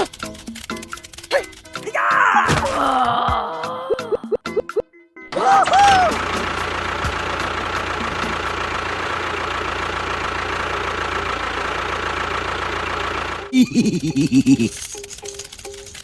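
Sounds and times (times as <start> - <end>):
motor running steadily: 5.9 - 13.6.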